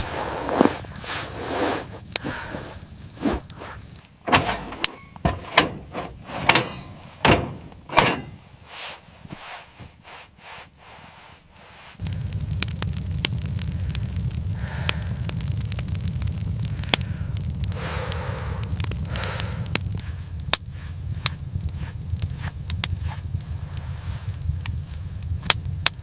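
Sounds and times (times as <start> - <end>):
scrapes and knocks: 0.0 - 10.7
low rumble with crackling: 0.0 - 26.0.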